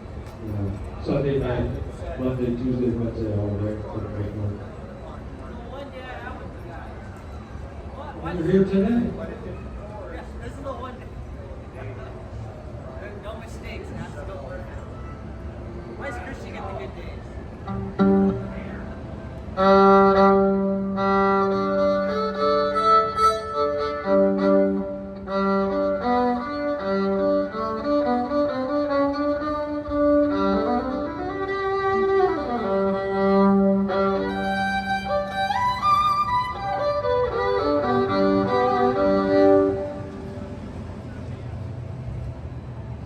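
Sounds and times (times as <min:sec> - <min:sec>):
fiddle playing held notes: 0:17.6 - 0:40.6.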